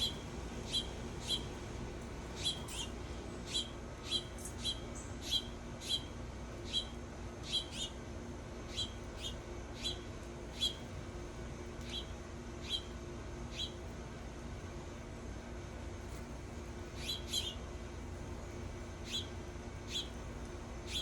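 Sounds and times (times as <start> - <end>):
songbird chip calls: 0.0 - 1.5, 2.4 - 8.0, 8.7 - 10.0, 10.6 - 10.8, 11.8 - 12.9, 13.5 - 13.8, 17.0 - 17.6, 19.0 - 19.3, 19.9 - 20.2
faint low hum: 0.0 - 21.0.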